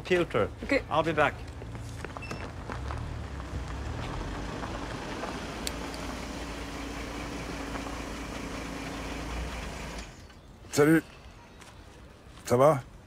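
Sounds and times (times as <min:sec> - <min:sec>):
car engine idling: 0:02.6 - 0:10.1.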